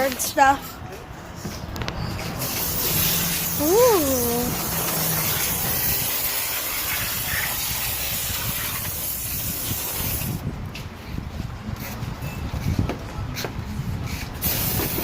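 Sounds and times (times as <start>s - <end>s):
high-pressure water spray hissing: 2.4s - 10.4s, 14.4s - 15.0s.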